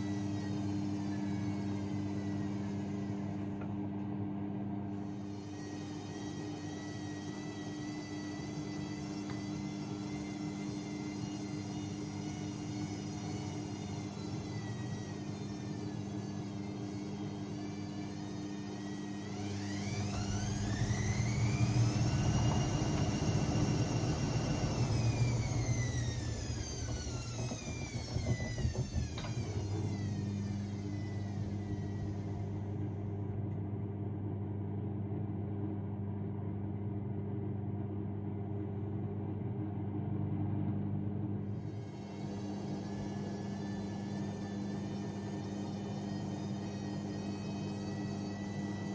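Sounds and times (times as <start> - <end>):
washing machine drum motor whine: 0.0 - 48.9
knocks: 26.8 - 29.8.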